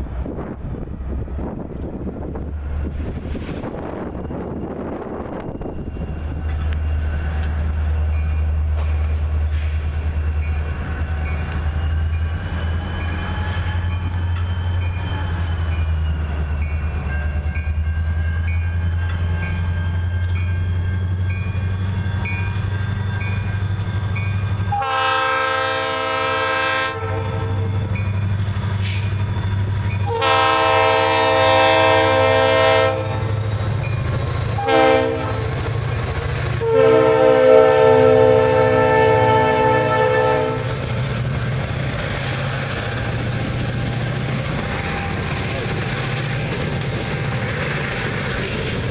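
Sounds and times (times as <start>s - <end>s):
locomotive engine rumble: 0.0s - 48.9s
train air horn blasts: 24.7s - 27.9s, 30.0s - 33.4s, 34.6s - 35.6s, 36.6s - 40.8s.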